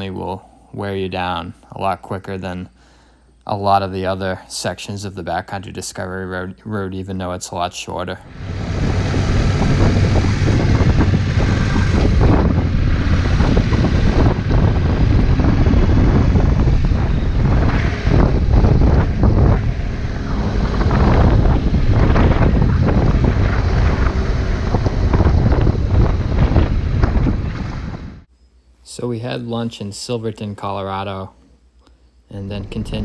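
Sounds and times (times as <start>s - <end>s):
motorcycle engine running: 8.2s - 28.0s
wind buffeting microphone: 8.2s - 28.3s, 32.5s - 33.0s.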